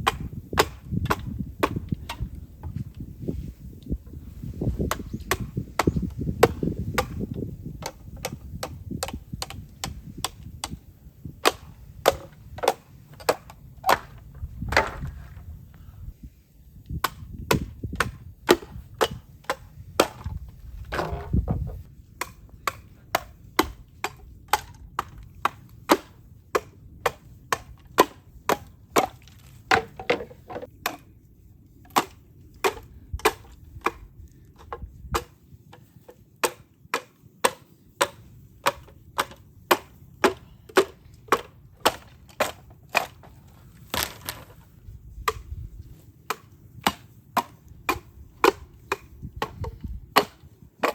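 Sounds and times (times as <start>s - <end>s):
bamboo being chopped: 0.0s - 2.4s, 4.8s - 10.8s, 11.4s - 15.1s, 16.9s - 31.1s, 31.9s - 34.0s, 34.6s - 44.6s, 45.2s - 50.9s
bamboo cracking: 31.9s - 50.9s.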